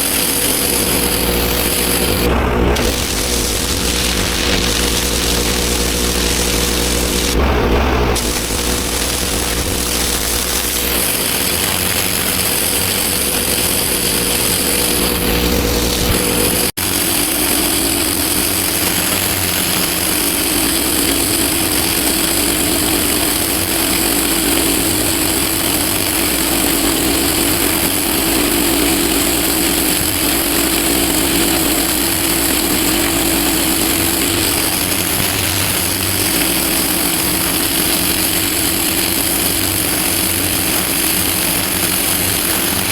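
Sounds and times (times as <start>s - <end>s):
pressure washer motor drone: 0.0s - 42.9s
water spray hissing on paving: 0.0s - 42.9s.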